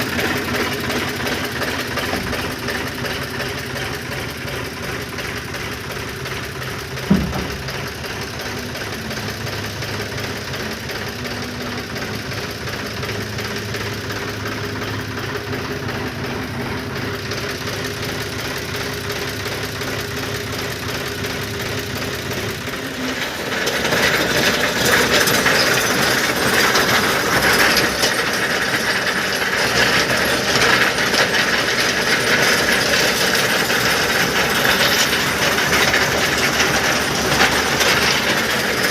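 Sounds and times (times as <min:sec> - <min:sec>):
machine rattling clatter: 0:00.0 - 0:38.9
tractor engine running: 0:00.0 - 0:38.9
sharp knock: 0:07.1 - 0:07.7.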